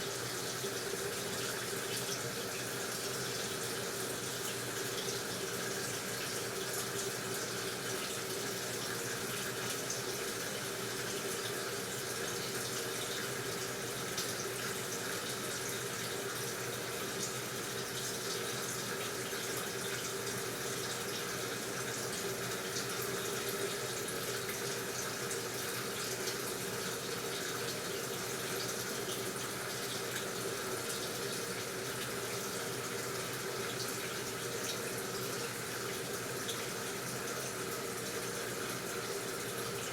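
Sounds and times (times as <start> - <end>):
water running into washing machine: 0.0 - 39.9.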